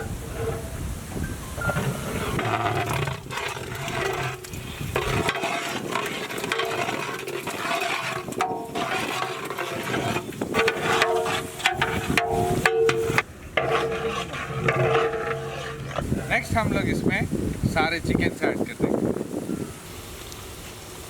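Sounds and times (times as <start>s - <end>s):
spices sizzling in hot oil: 19.8s - 21.0s.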